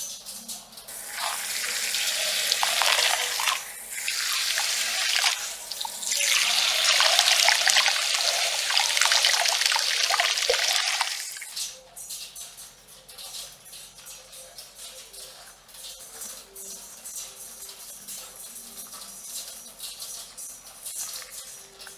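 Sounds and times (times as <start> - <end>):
water running from sprayer: 0.8 - 11.7.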